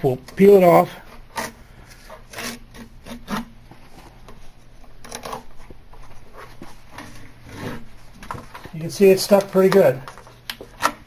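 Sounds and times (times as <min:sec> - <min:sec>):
edge banding tearing off: 0:01.1 - 0:03.6.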